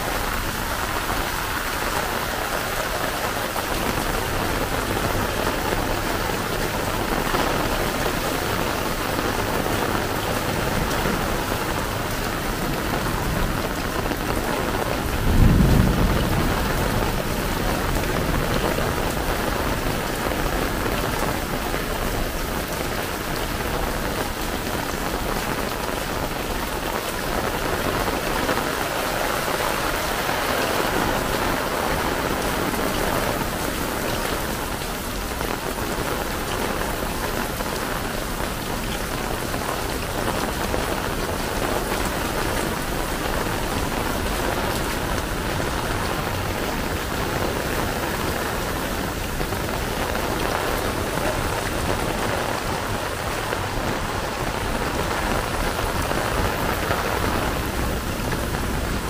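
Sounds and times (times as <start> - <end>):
heavy rain falling: 0.0 - 59.0
low rumble of thunder: 12.4 - 21.3.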